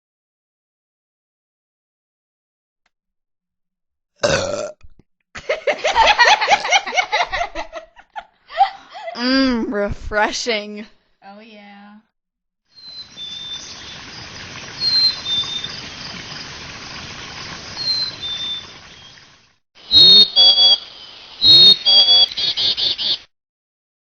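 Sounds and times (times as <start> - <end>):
small birds chirping: 12.8 - 23.3
background hiss: 13.0 - 23.2
harsh bird squawks: 14.8 - 15.8, 19.9 - 23.3.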